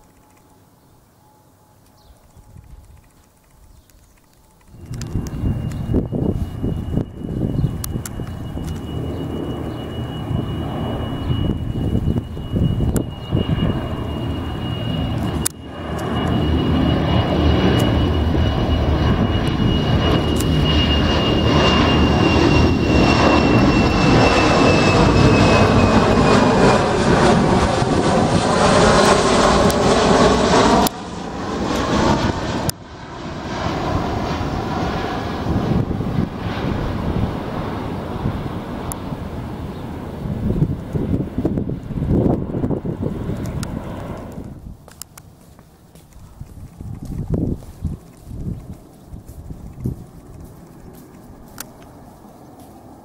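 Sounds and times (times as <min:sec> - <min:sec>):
airliner engines with high whine: 0:00.0 - 0:53.0.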